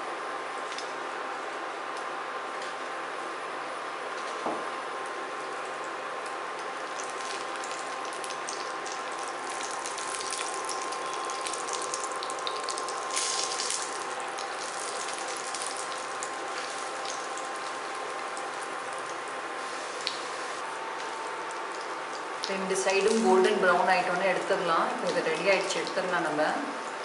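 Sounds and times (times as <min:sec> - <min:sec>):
fish frying in oil: 0:05.0 - 0:23.4.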